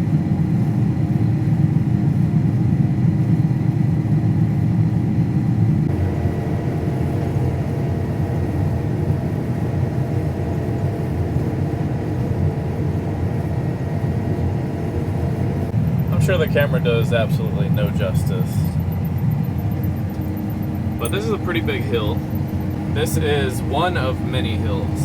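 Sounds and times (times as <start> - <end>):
faint steady whine: 3.2 - 25.0
heavy vehicle engine droning: 14.6 - 25.0.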